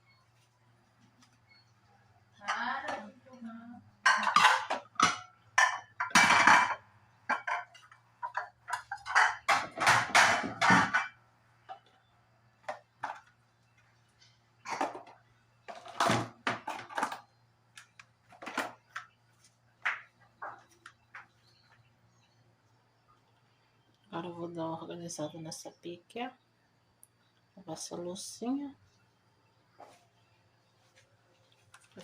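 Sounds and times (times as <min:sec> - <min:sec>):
dishes clattering and clinking: 0:04.0 - 0:11.9, 0:14.6 - 0:19.1.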